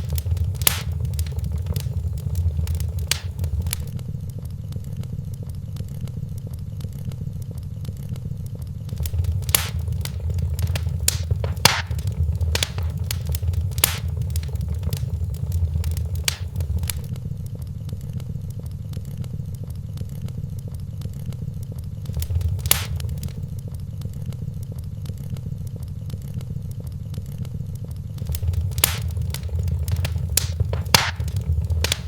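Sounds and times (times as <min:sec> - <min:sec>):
sharp pops of fire: 0:00.0 - 0:04.0, 0:08.9 - 0:17.1, 0:22.0 - 0:23.5, 0:28.2 - 0:32.0
wood fire crackling: 0:00.0 - 0:04.4, 0:08.9 - 0:17.6, 0:22.0 - 0:23.8, 0:28.2 - 0:32.0.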